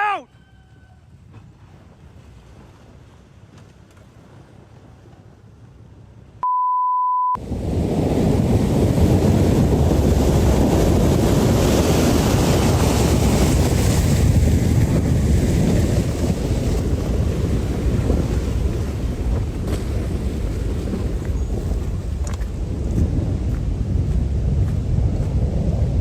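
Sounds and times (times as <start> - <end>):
censor bleep: 6.4 - 7.4
rough water rushing: 7.4 - 26.0
wind on microphone: 7.4 - 26.0.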